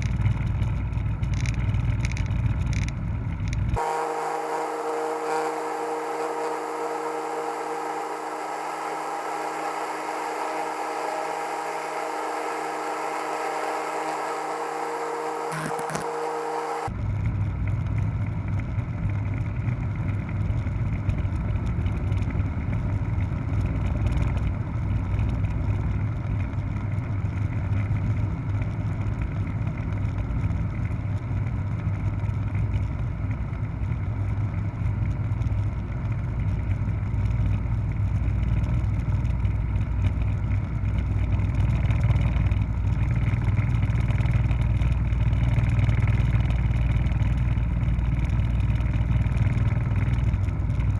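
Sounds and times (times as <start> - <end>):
helicopter engine and rotor drone: 3.8 - 16.9.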